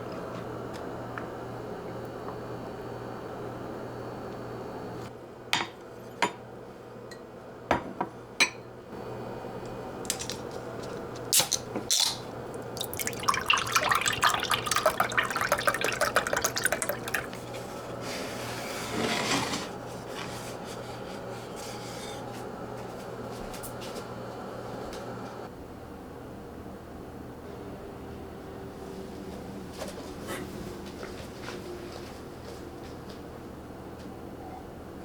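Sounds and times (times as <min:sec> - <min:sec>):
liquid pouring: 0:12.5 - 0:17.9.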